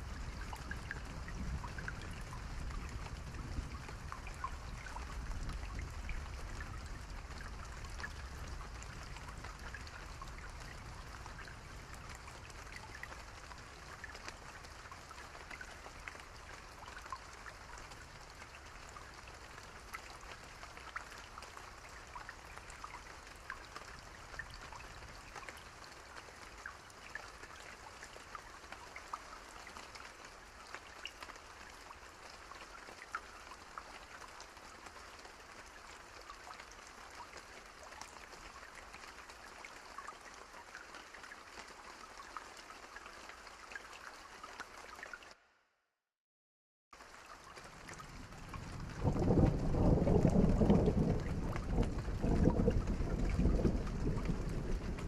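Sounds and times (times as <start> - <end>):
rain pattering on a surface: 0.0 - 45.4, 46.9 - 55.0
faint low rumble: 47.9 - 55.0.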